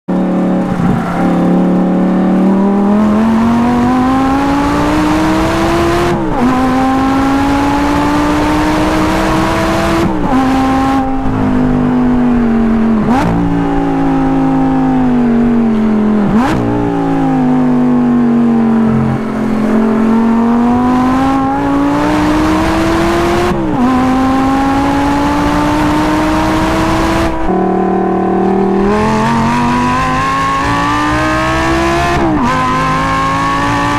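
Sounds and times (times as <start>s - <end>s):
sports car engine revving through gears: 0.1s - 33.9s.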